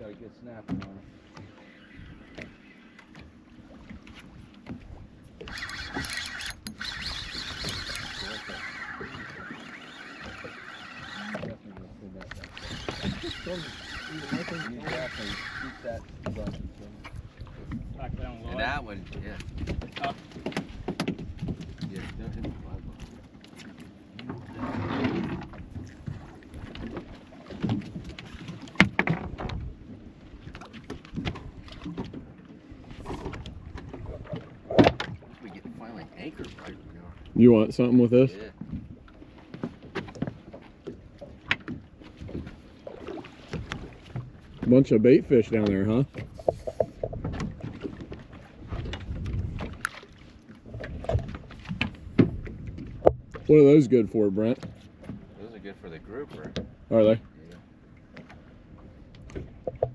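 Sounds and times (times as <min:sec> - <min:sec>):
knocks and thumps on boat: 0:00.0 - 0:01.6, 0:15.8 - 0:55.4, 0:56.2 - 0:59.9
water rushing: 0:00.7 - 0:29.6, 0:30.4 - 0:59.9
small knocks and thumps: 0:45.6 - 0:48.0, 0:59.3 - 0:59.9.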